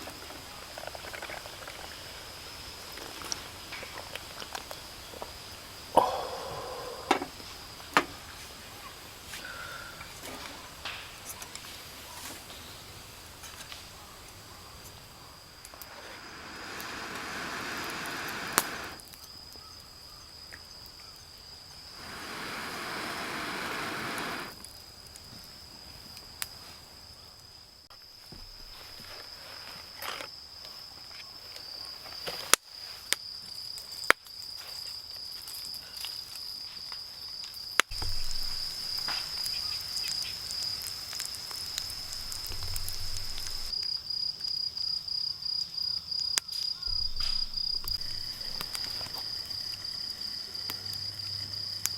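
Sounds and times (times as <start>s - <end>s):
campfire popping and crackling: 0.0s - 19.7s, 21.6s - 26.6s, 37.4s - 43.8s, 46.8s - 51.9s
crickets trilling: 0.0s - 51.9s
rushes of noise: 15.6s - 19.0s, 22.0s - 24.6s.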